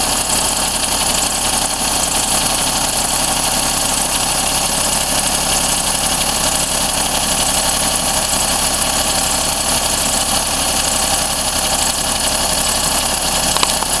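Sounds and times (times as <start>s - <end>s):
car engine idling: 0.0s - 14.0s
metallic engine ticking: 5.6s - 14.0s.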